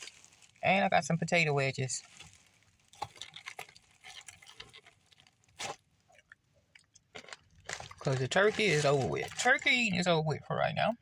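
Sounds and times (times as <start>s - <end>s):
person chewing crunchy food: 2.1s - 9.6s.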